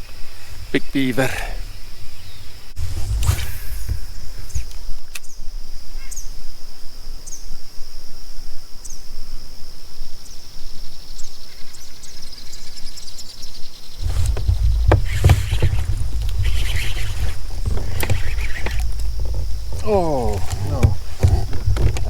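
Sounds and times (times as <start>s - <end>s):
bird chirping: 13.9s - 22.0s.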